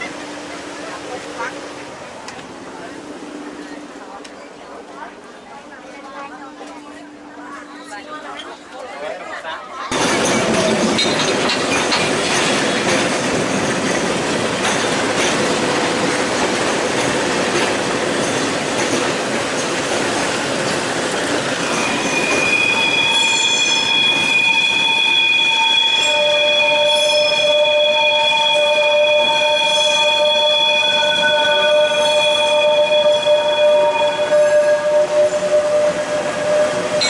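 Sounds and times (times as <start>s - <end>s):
train wheels rumbling on track: 9.9s - 37.0s
train wheels squealing: 21.2s - 37.0s.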